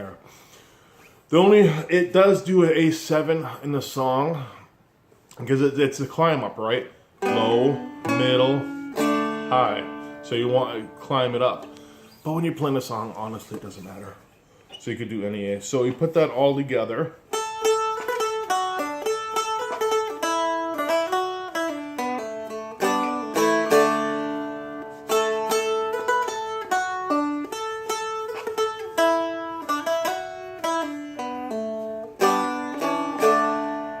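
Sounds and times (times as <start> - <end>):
plucked strumstick melody: 7.2 - 13.6, 17.3 - 34.0.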